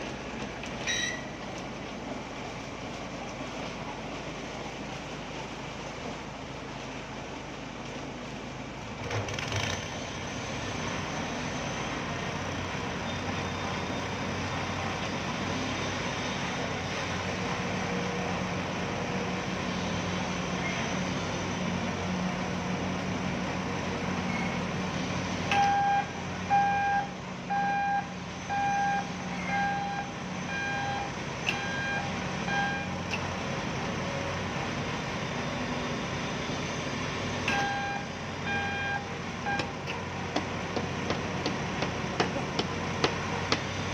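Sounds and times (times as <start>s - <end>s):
truck engine running: 0.0s - 43.9s
reversing alarm beeping: 0.8s - 1.4s, 25.5s - 33.1s, 37.5s - 39.7s.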